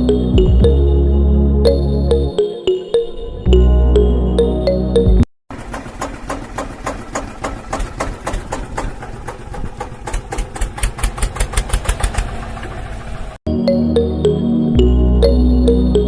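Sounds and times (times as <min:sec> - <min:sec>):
miniature engine knocking: 0:05.5 - 0:13.1.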